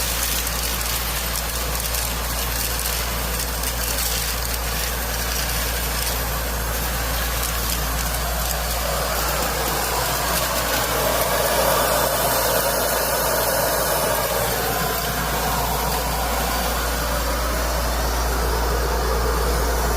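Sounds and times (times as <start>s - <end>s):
air vacuum cleaner rushing: 5.7s - 19.9s.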